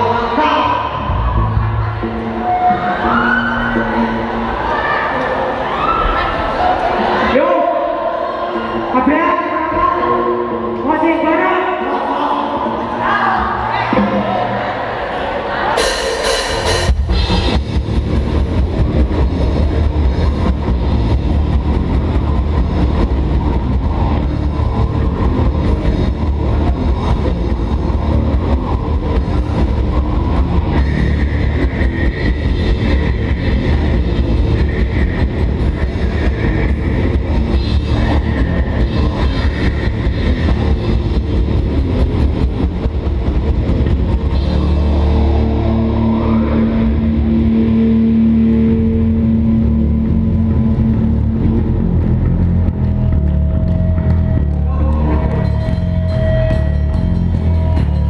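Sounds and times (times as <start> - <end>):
metal band playing live: 15.7 - 58.0.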